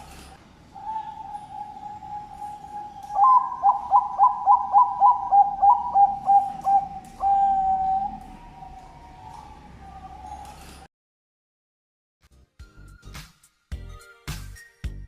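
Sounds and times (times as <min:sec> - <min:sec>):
dove cooing: 0:00.7 - 0:10.7.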